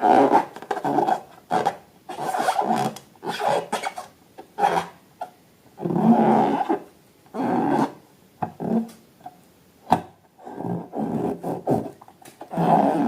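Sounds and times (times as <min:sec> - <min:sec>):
balloons rubbed and squeezed: 0:00.0 - 0:04.9, 0:10.4 - 0:13.0.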